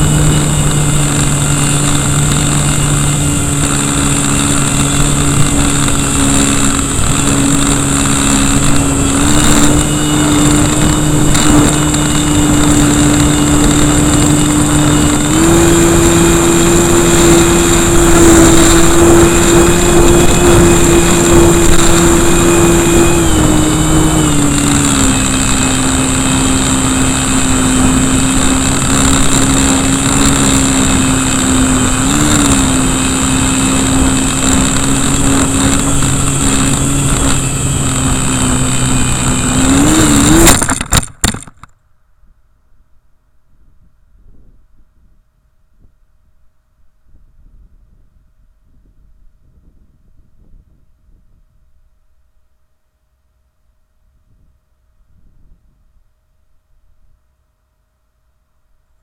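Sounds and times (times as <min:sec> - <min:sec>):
wind on microphone: 0:00.0 - 0:41.5, 0:43.5 - 0:46.4, 0:47.0 - 0:52.0, 0:54.2 - 0:56.0
electric motor and propeller whine: 0:00.0 - 0:41.7.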